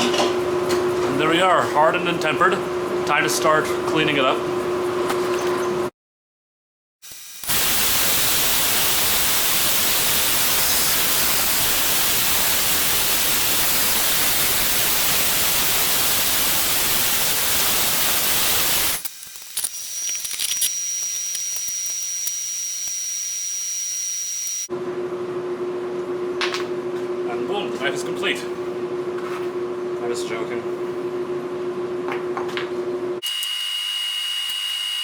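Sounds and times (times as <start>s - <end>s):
grinder grinding steel blade: 7.0s - 24.7s.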